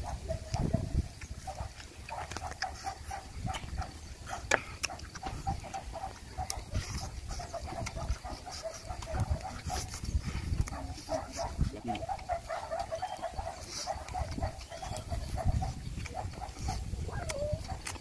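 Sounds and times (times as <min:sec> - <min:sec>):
wet chewing and lip smacking: 0:00.0 - 0:18.0
meat tearing by hand: 0:16.0 - 0:18.0.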